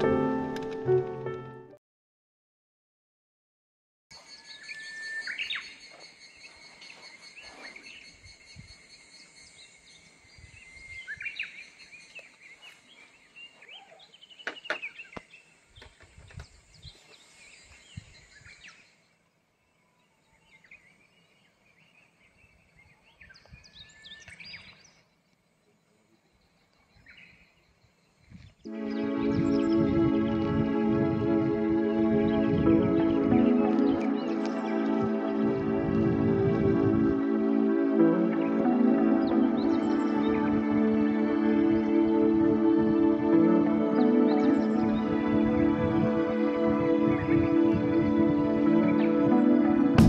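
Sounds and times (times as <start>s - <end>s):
birds chirping and trilling: 4.1s - 30.8s, 32.0s - 36.3s, 37.2s - 42.6s, 43.6s - 45.8s.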